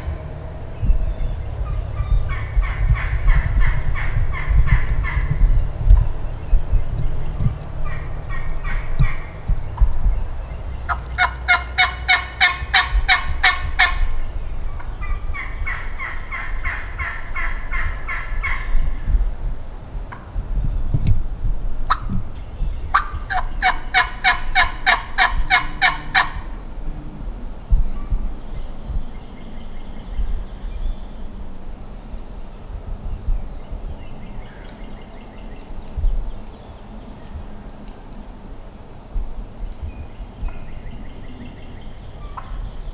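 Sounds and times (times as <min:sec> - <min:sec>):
turkey yelping: 0:10.9 - 0:14.1, 0:22.9 - 0:26.5.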